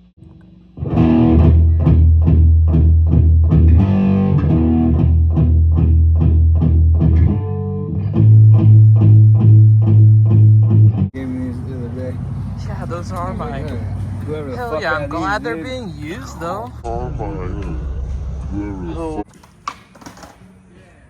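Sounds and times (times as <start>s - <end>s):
picked guitar music: 0.2s - 11.2s.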